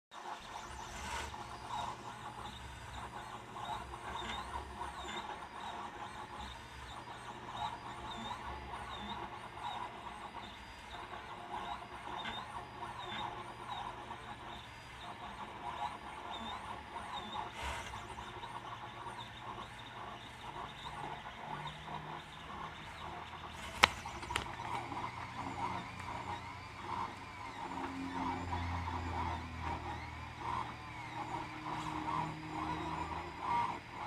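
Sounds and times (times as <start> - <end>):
steady low hum: 0.2 - 34.0
stepper motors whining: 0.2 - 34.0.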